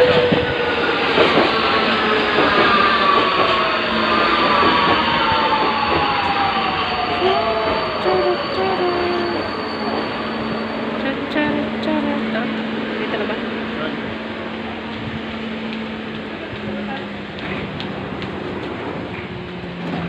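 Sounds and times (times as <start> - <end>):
wheels rumbling on rail: 0.0 - 20.0.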